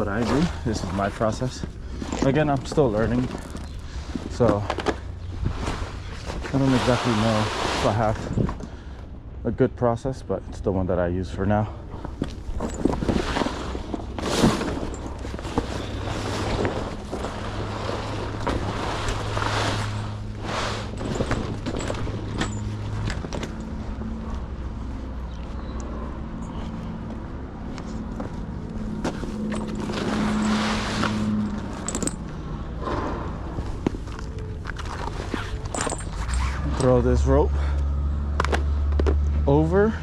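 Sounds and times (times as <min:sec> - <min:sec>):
tarp rustling and scraping: 0:00.0 - 0:08.4, 0:12.3 - 0:23.9, 0:28.9 - 0:32.2, 0:33.6 - 0:37.0
engine humming: 0:10.4 - 0:40.0.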